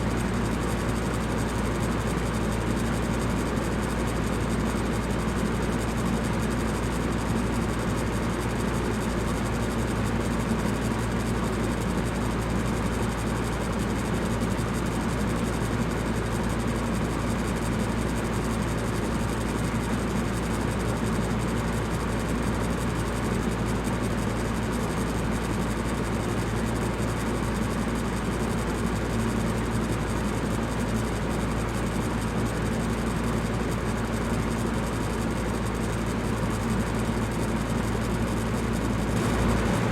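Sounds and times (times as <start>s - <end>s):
electric fan running: 33.9s - 39.9s.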